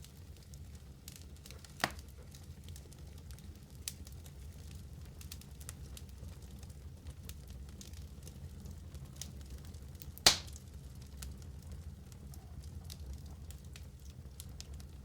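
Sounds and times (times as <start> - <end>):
fire crackling: 0.0 - 15.0
fire popping: 0.0 - 15.0
low fire rumble: 0.0 - 15.0.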